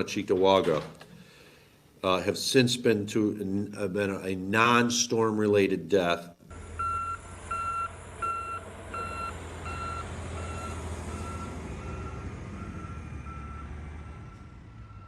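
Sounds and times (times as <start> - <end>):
low engine rumble: 6.5 - 15.0
reversing alarm beeping: 6.6 - 15.0.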